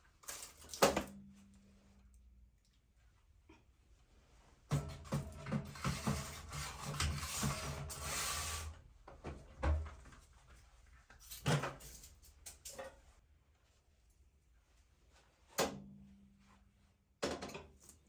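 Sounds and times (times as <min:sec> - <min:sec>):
rubbing and scraping: 0:05.1 - 0:08.7.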